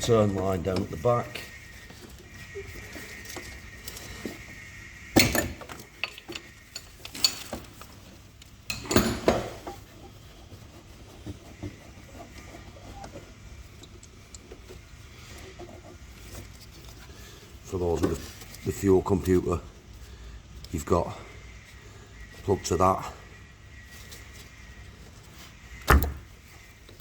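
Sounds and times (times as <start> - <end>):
hand tools and metal parts clanking: 0.0 - 20.0.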